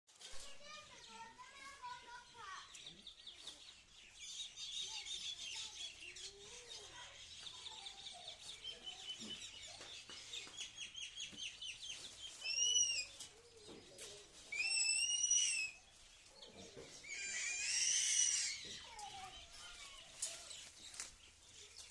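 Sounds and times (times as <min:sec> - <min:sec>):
small birds chirping: 0:00.1 - 0:21.9
arched bird call: 0:12.3 - 0:13.2, 0:14.5 - 0:15.9, 0:17.0 - 0:19.0.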